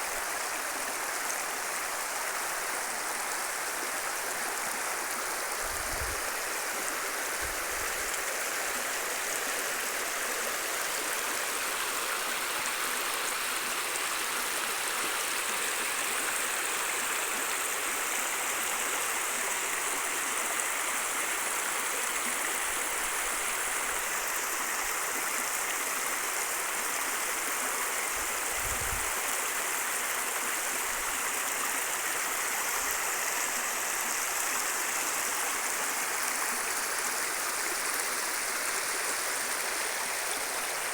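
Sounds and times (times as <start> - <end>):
stream water flowing: 0.0 - 40.9.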